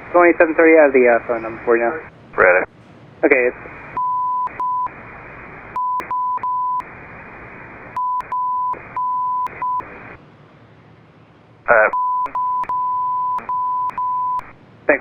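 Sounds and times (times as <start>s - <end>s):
radio hiss: 0.1s - 10.2s, 11.7s - 12.0s, 14.4s - 15.0s
censor bleep tone: 4.0s - 4.9s, 5.8s - 6.8s, 8.0s - 9.9s, 11.9s - 14.5s.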